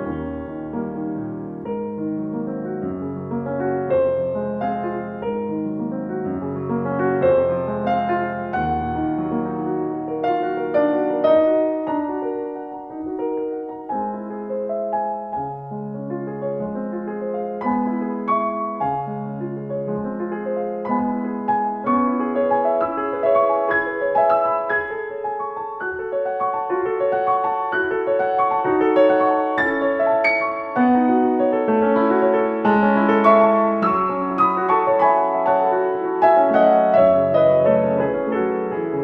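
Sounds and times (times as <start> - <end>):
piano music: 0.0 - 39.0.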